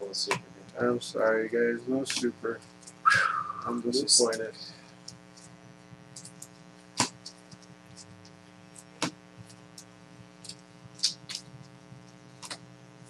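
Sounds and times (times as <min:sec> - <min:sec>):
electrical hum: 0:00.0 - 0:13.0
cards tapping and clicking: 0:07.0 - 0:08.1, 0:12.4 - 0:12.6.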